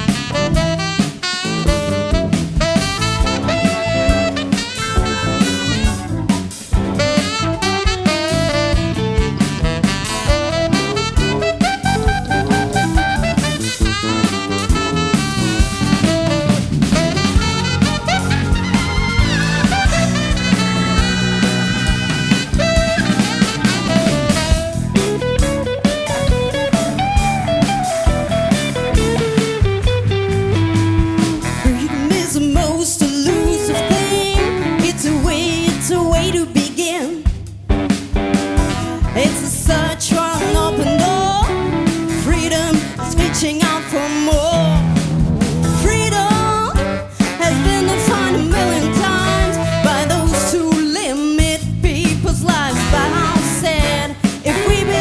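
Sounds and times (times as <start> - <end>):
lead melody line bending: 0.0 - 32.8, 44.4 - 50.8, 51.9 - 55.0
jazz-rock band playing: 0.0 - 55.0.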